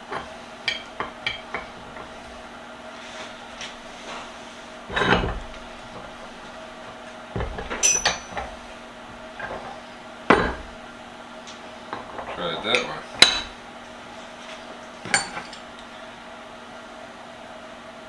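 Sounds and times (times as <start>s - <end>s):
metal parts knocking and clanking: 0.0s - 2.5s, 3.1s - 11.0s, 11.9s - 13.7s, 15.0s - 15.8s
high metallic ring: 7.7s - 8.6s.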